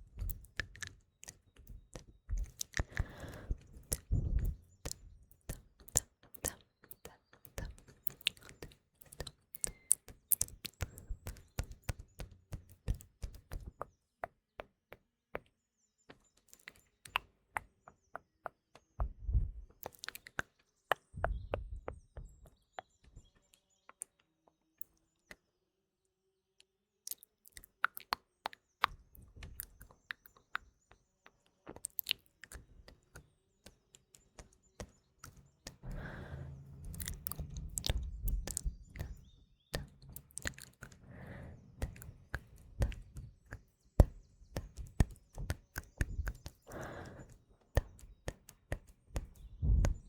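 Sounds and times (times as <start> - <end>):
faint birdsong: 0.0 - 50.0
wet mouth clicks and smacks: 0.2 - 13.7, 19.8 - 20.5, 27.1 - 30.4, 31.7 - 33.2, 36.8 - 41.0, 41.8 - 50.0.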